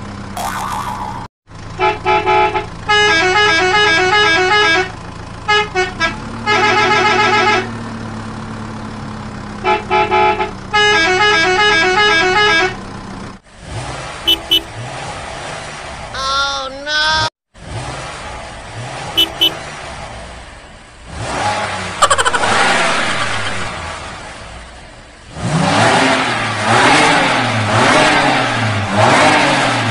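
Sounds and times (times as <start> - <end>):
short beeps: 14.3 - 14.7, 19.2 - 19.6
toy beeping horn: 14.3 - 14.7, 19.2 - 19.6.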